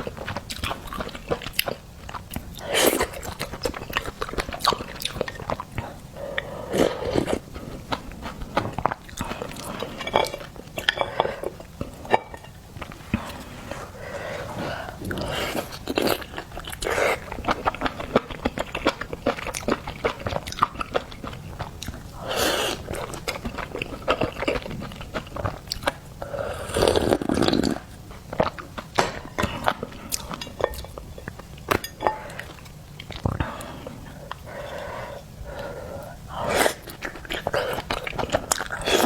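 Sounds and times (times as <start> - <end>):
breathy sounds: 33.3 - 37.9.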